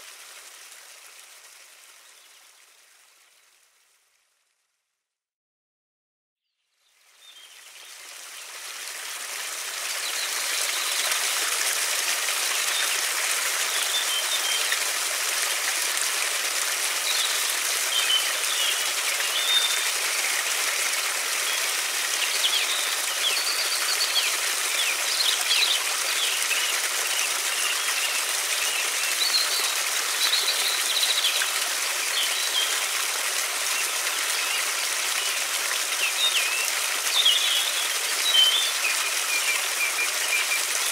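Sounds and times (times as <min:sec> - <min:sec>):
river water rushing: 0:07.8 - 0:40.9
small birds chirping: 0:17.0 - 0:20.4, 0:36.0 - 0:40.9.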